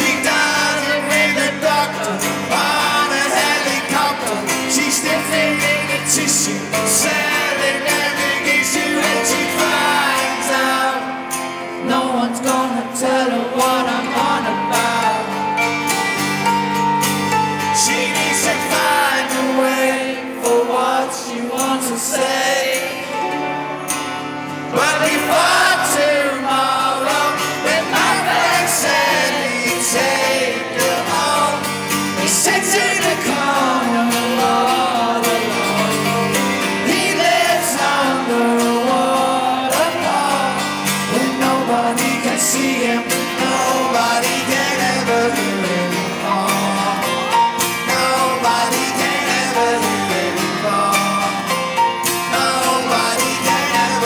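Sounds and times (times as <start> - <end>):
live rock band playing: 0.0 - 21.0, 21.6 - 54.0
electric guitar: 0.0 - 54.0.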